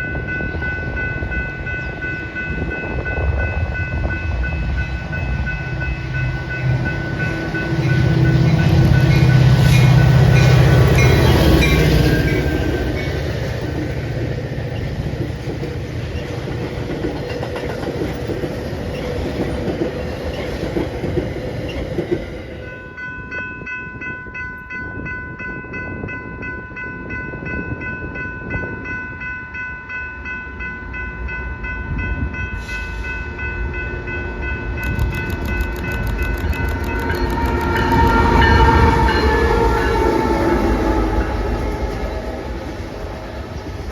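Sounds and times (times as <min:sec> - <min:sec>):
train rumbling on rails: 0:00.0 - 0:43.9
long high-pitched tone: 0:28.6 - 0:43.9.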